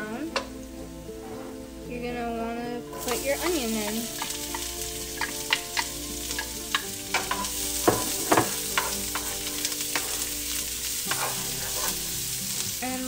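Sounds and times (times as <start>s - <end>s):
onion sizzling in hot oil: 0.0s - 13.0s
wooden spoon scraping a pan: 0.4s - 1.9s, 2.9s - 13.0s.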